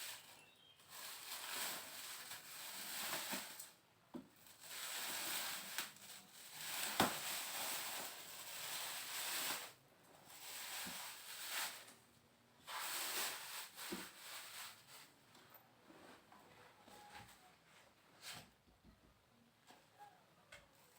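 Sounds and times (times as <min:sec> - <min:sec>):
packaging rustling and rubbing: 0:00.0 - 0:03.8, 0:04.4 - 0:12.0, 0:12.6 - 0:15.1.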